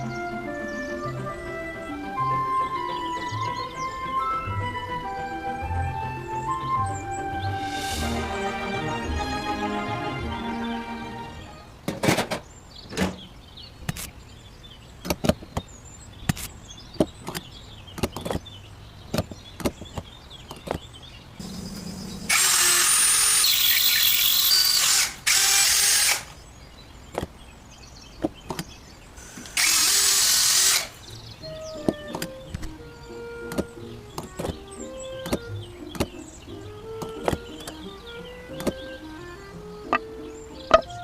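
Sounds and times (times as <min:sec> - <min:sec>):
electric drill whining: 0:22.2 - 0:26.4, 0:29.2 - 0:31.0.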